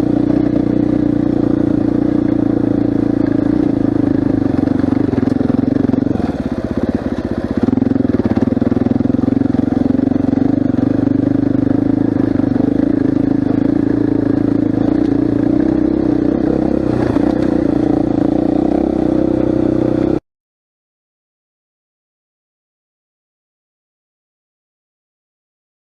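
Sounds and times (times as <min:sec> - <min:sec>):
dirt bike engine under load: 0:00.0 - 0:18.8.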